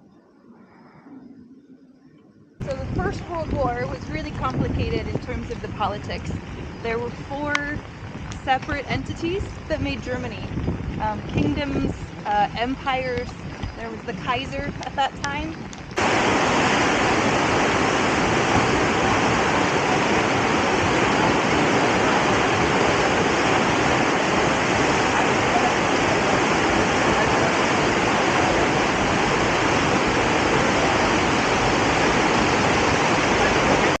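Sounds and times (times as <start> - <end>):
fast-flowing water rushing: 16.0 - 34.0.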